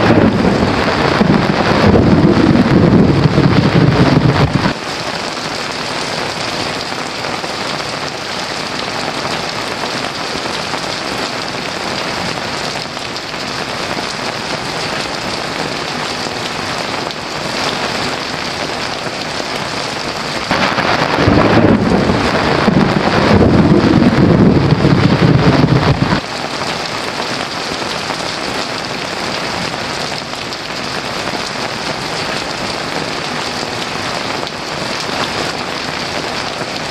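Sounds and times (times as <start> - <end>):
rolling thunder rumble: 0.0 - 4.8, 20.4 - 26.3
heavy rain falling: 0.0 - 36.9.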